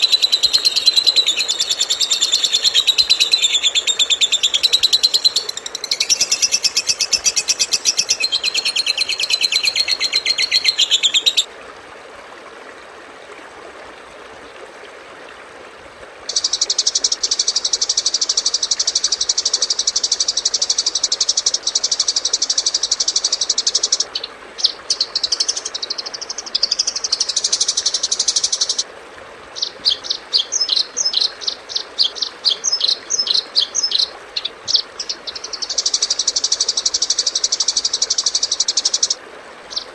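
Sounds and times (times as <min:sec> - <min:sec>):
bird chattering: 0:00.0 - 0:11.5
songbird buzzy trills: 0:00.0 - 0:11.5, 0:16.3 - 0:28.8, 0:29.6 - 0:39.9.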